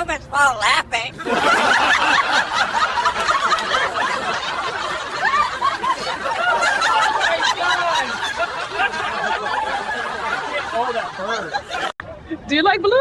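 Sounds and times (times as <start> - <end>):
people laughing: 1.2 - 12.0.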